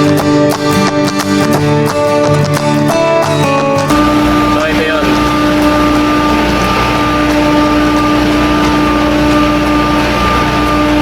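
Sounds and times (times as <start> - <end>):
chiller machine drone: 3.9 - 11.0.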